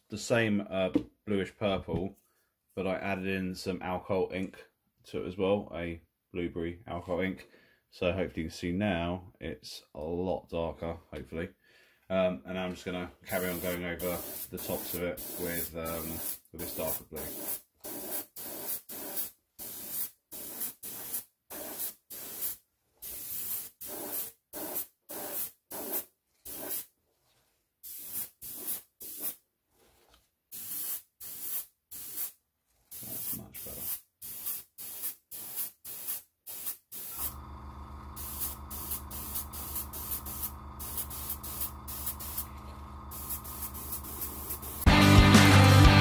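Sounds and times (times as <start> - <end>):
airbrush spraying in hissing spurts: 13.3 - 26.9, 27.8 - 29.4, 30.5 - 44.9.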